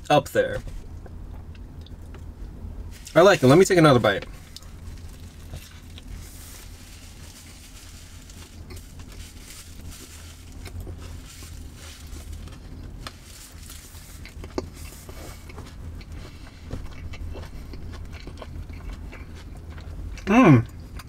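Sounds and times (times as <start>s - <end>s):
low steady hum: 0.0s - 21.0s
crunchy chewing: 4.2s - 21.0s.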